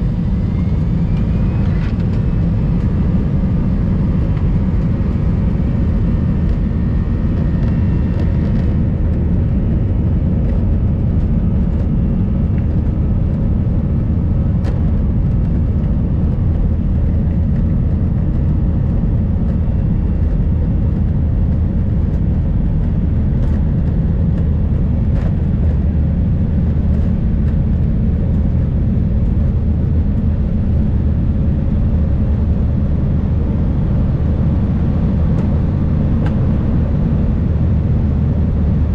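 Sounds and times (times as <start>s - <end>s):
jet engines rumbling in cabin: 0.0s - 38.9s.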